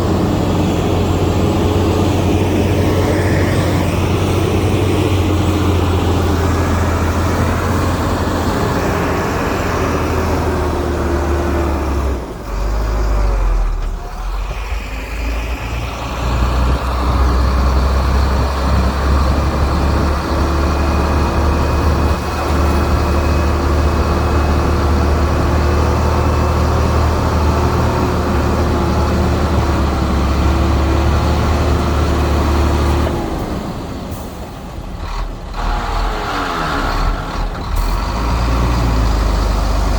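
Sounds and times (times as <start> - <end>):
diesel earthmoving machinery drone: 0.0 - 39.9.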